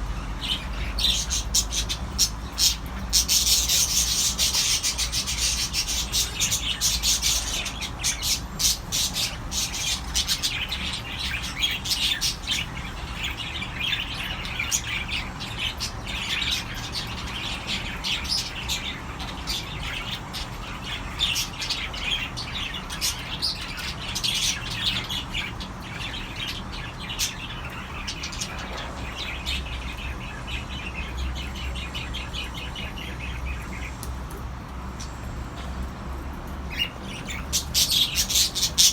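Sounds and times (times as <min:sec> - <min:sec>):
cockatiels chirping: 0:36.7 - 0:38.9.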